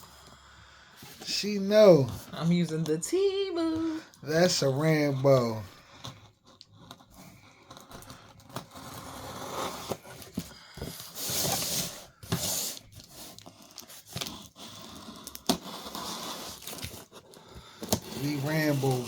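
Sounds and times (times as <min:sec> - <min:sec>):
knife scraping packaging: 0:05.9 - 0:19.0
packaging ripping: 0:11.1 - 0:19.0.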